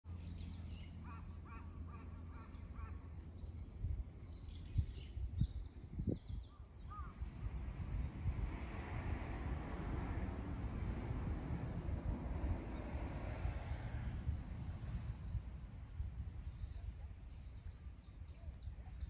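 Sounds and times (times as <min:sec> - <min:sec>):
low rumble: 0:06.9 - 0:19.0.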